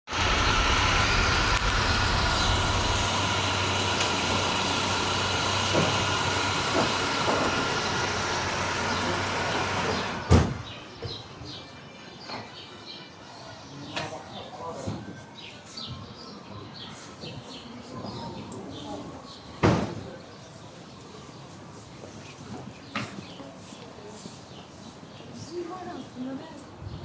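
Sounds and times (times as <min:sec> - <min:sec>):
loud mechanical drone: 0:00.1 - 0:10.8.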